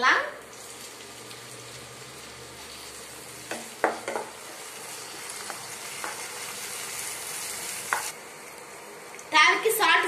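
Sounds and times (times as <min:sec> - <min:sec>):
vegetables sizzling in a pan: 0:00.0 - 0:10.0
wooden spatula knocking on pan: 0:03.5 - 0:04.3.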